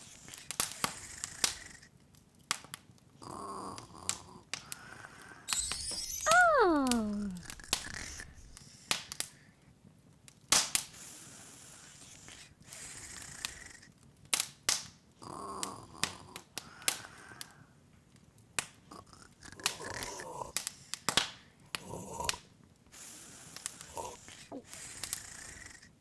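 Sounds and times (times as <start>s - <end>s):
open fire crackling: 5.5s - 9.2s
cartoon voice saying oh: 6.2s - 7.8s.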